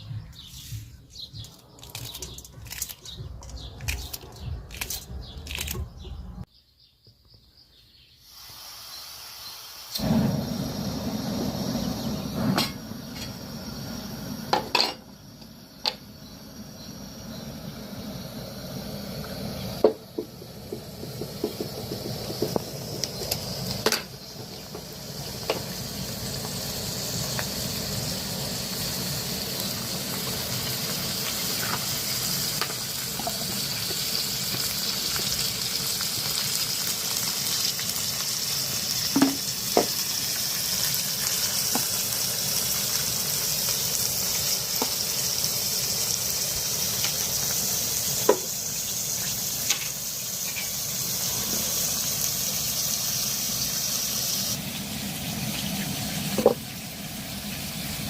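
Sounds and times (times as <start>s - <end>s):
food sizzling in a frying pan: 8.2s - 58.0s.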